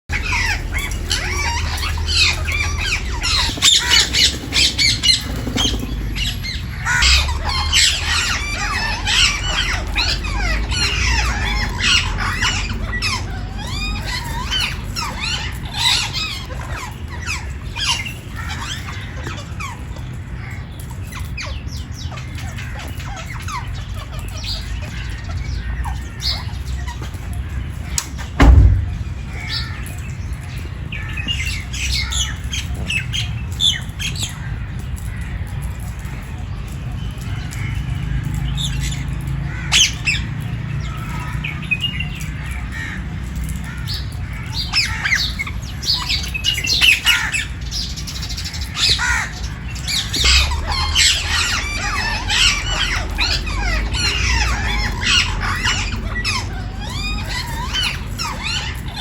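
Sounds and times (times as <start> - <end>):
parrots squawking: 0.1 - 30.0, 37.6 - 59.0
loud thump: 28.4 - 29.5.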